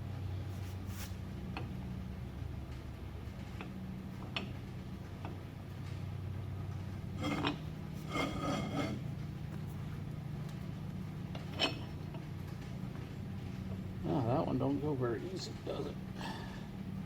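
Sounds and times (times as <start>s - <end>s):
steady low hum: 0.0s - 17.0s
squeaky scrapes: 7.2s - 9.1s.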